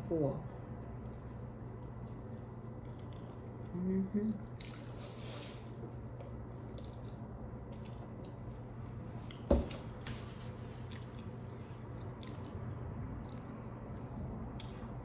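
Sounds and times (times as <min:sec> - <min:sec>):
steady low hum: 0:00.0 - 0:15.0
person chewing food: 0:00.8 - 0:03.7, 0:04.4 - 0:09.5, 0:10.6 - 0:15.0
wet mouth clicks and smacks: 0:14.5 - 0:14.8.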